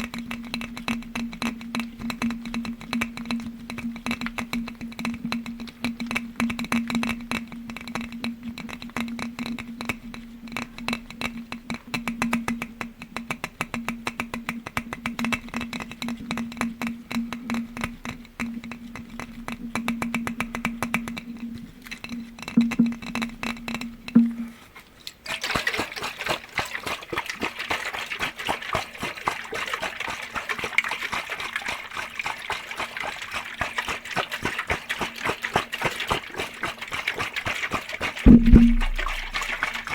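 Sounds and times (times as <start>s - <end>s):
rapid tapping on glass: 0.0s - 24.5s, 26.6s - 39.9s
steady low tone: 17.1s - 24.6s, 38.3s - 39.7s.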